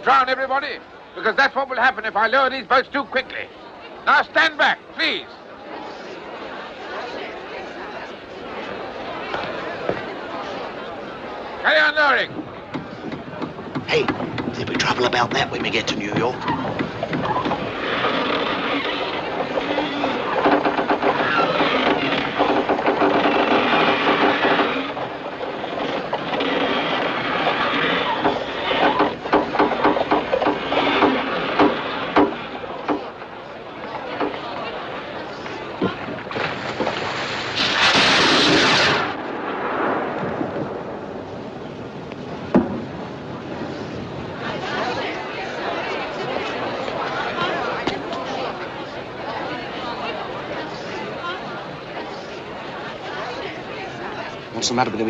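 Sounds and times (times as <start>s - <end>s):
ropes clattering through pulley blocks: 12.8s - 33.2s
sharp bang: 36.3s - 41.4s
rocket rushing hiss: 37.0s - 41.0s.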